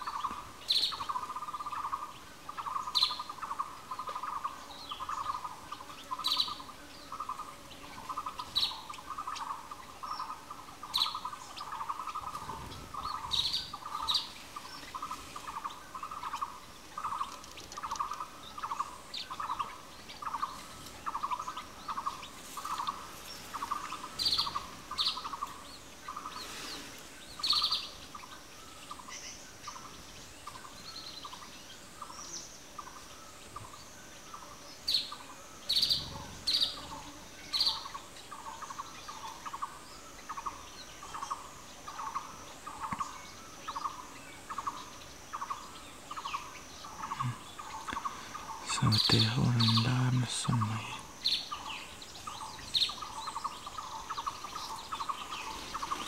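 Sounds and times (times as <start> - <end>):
bird repeating low note: 46.2 - 56.0.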